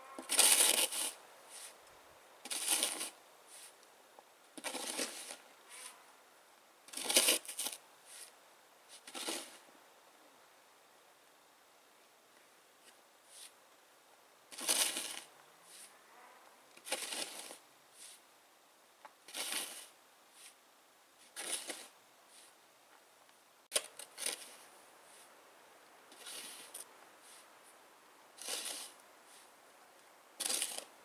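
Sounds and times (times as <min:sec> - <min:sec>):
snow shovel scraping wet snow: 0:00.3 - 0:01.8, 0:02.5 - 0:03.8, 0:04.6 - 0:05.9, 0:16.8 - 0:18.2, 0:26.1 - 0:27.5, 0:28.4 - 0:29.5, 0:30.4 - 0:31.0.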